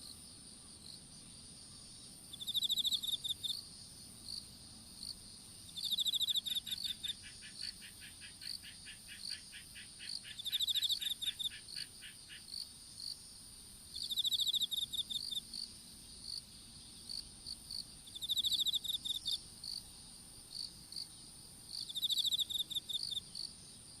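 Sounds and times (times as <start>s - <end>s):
insect high-pitched trill: 1.8s - 13.3s, 13.9s - 15.7s, 16.3s - 19.9s, 20.5s - 23.6s
insect pulsed trill: 1.8s - 13.3s, 13.9s - 23.7s
insect clicking call: 2.3s - 3.6s, 5.8s - 13.2s, 13.9s - 15.7s, 17.1s - 19.8s, 21.7s - 23.5s
insect short chirps: 2.3s - 3.6s, 5.7s - 13.2s, 13.9s - 15.7s, 17.1s - 19.8s, 21.7s - 23.5s.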